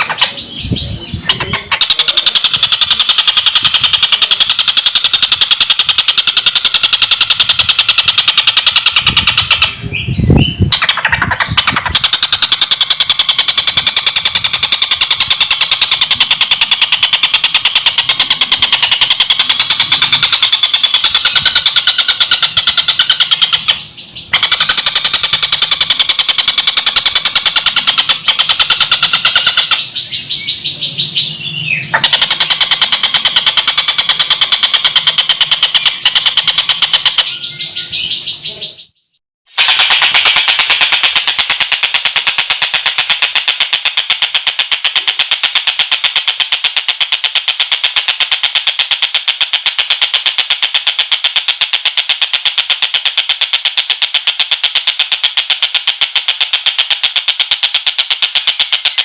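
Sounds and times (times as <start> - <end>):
kingfisher cackling rattle: 0.0 - 0.6, 1.2 - 9.8, 10.7 - 30.1, 31.9 - 37.6.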